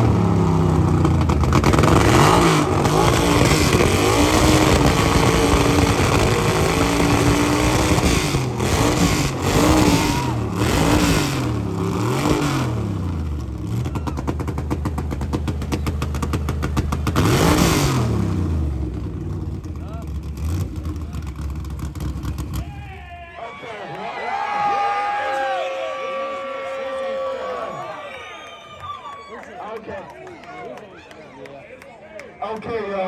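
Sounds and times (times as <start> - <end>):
car engine revving: 0.0 - 22.7.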